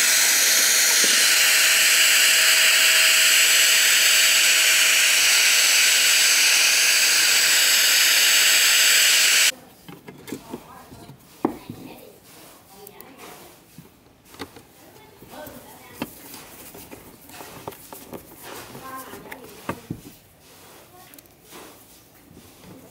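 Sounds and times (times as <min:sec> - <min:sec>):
compressed air hissing from air tool: 0:00.0 - 0:09.5.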